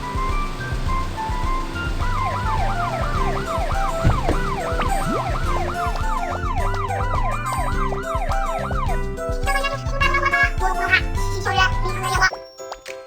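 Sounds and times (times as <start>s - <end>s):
background music: 0.0s - 13.0s
cartoon siren wailing: 1.9s - 12.3s.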